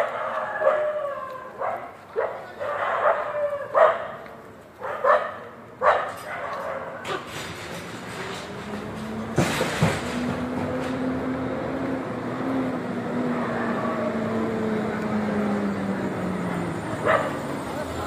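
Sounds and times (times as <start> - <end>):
sharp knocks: 7.3 - 11.0.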